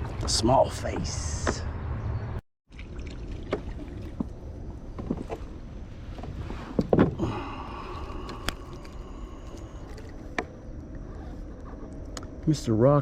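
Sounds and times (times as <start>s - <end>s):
kayak handling and water noise: 2.7s - 12.0s.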